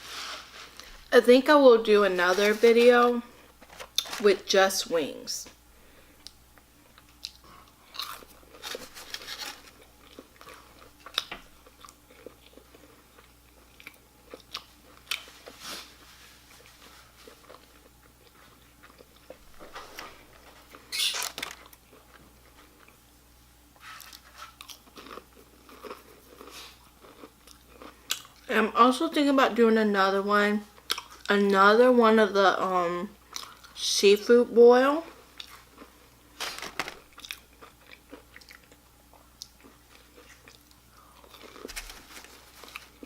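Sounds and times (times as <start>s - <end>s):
chewing crispy food: 6.2s - 23.1s, 23.8s - 28.5s, 30.8s - 31.3s, 33.2s - 33.8s, 35.1s - 43.0s.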